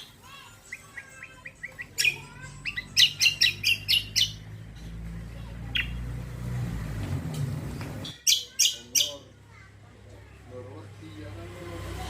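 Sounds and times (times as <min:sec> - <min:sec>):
songbird chirping: 0:00.0 - 0:09.6.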